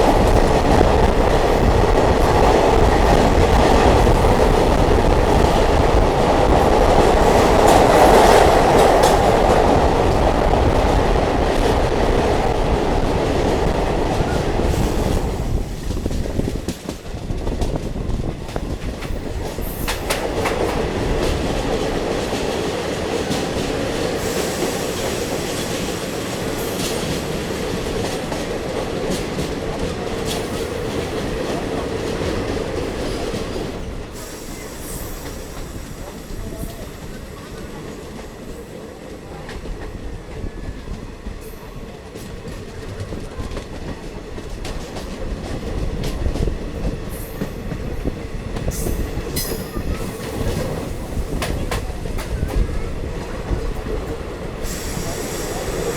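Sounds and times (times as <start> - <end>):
train rumbling on track: 0.0 - 55.9.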